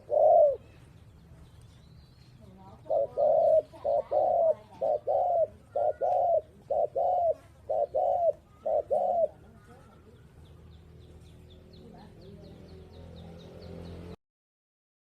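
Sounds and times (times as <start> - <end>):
dove cooing: 0.0 - 0.9, 2.7 - 10.2.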